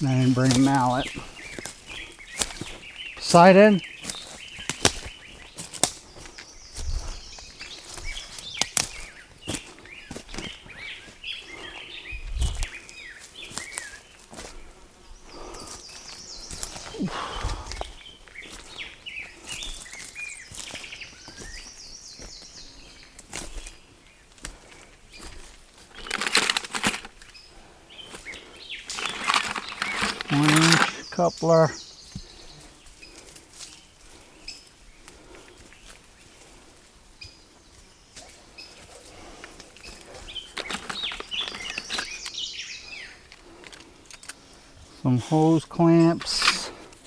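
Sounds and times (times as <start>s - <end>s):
small birds chirping: 0.0s - 47.0s
hands handling plastic pipe: 25.9s - 27.2s, 28.9s - 31.6s, 40.5s - 42.4s, 46.1s - 46.7s.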